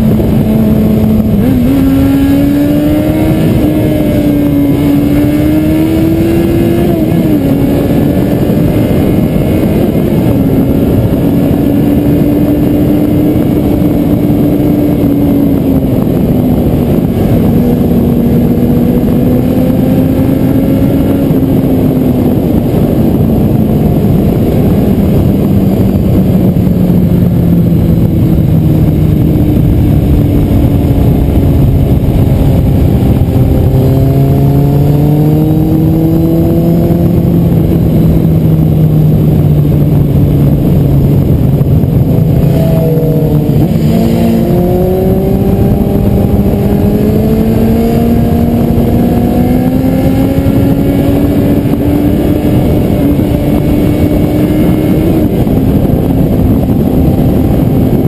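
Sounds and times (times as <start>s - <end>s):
motorcycle engine running: 0.0s - 58.0s
wind rush on microphone: 0.0s - 58.0s.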